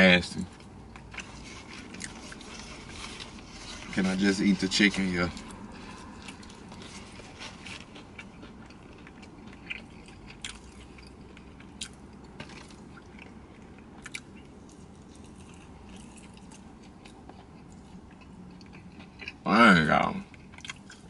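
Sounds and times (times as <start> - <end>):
person chewing food: 0.5 - 19.4, 20.2 - 21.0.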